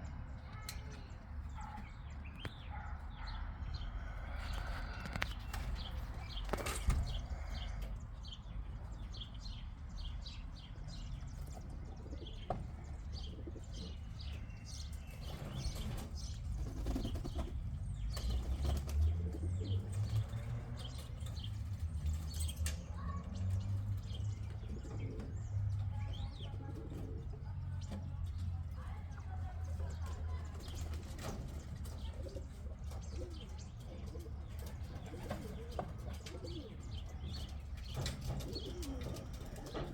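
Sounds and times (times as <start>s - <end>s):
pigeons cooing: 2.5s - 28.5s, 29.7s - 39.9s
pigeons flapping wings: 15.2s - 19.2s.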